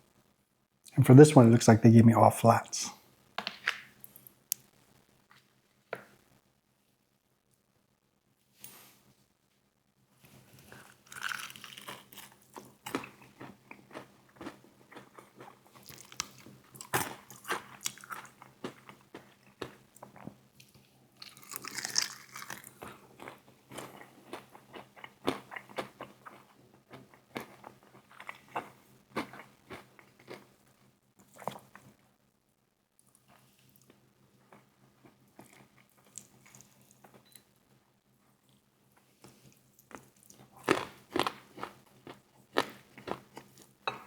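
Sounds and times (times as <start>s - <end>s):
crunchy chewing of fried chicken: 10.2s - 32.2s, 33.0s - 37.3s, 38.3s - 43.8s.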